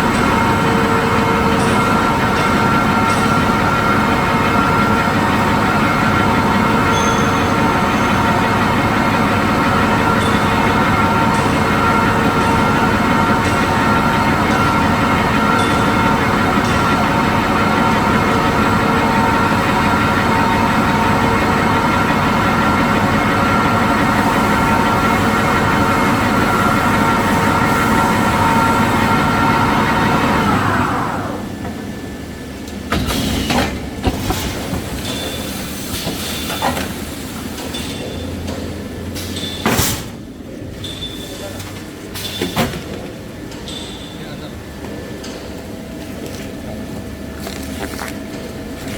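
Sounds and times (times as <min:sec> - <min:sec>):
machinery whining: 0:00.0 - 0:48.9.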